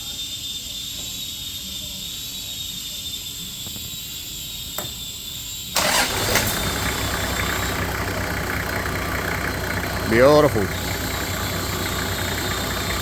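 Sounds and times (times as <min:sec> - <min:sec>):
diesel engine starting and idling: 0:05.8 - 0:13.0.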